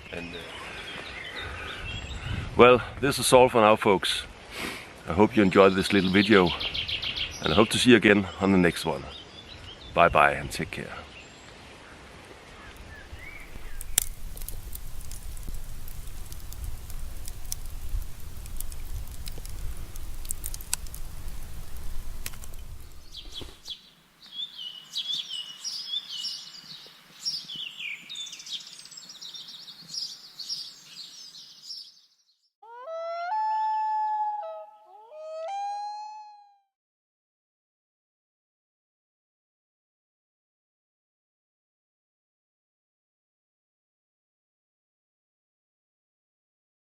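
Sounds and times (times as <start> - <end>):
birdsong chirping: 0.0 - 2.4, 5.4 - 10.4, 12.6 - 36.4
steady rain: 10.5 - 30.5
short pitch-bending tones: 32.6 - 36.7.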